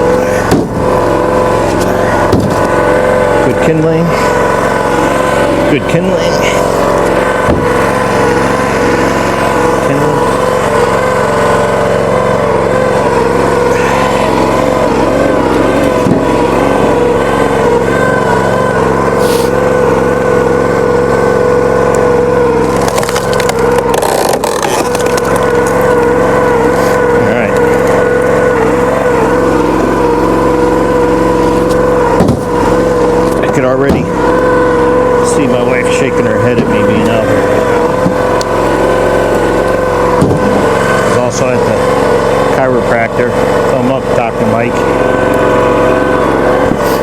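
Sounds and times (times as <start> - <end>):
gas engine running steadily: 0.0 - 47.0
sharp knocks: 0.5 - 0.8, 2.3 - 2.6, 7.4 - 7.8, 32.2 - 32.5.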